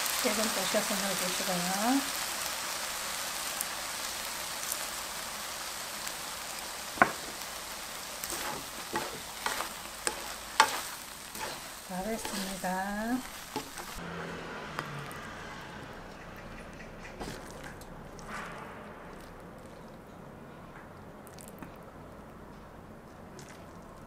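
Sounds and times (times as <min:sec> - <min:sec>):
food sizzling in a pan: 0:00.0 - 0:14.0
spatulas stirring food: 0:08.2 - 0:14.0, 0:17.1 - 0:20.1.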